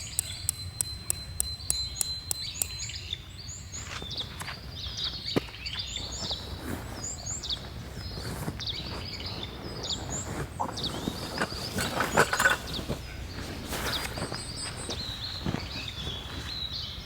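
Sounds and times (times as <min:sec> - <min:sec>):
sharp clicks and knocks: 0:00.0 - 0:02.9
small birds chirping: 0:00.0 - 0:17.0.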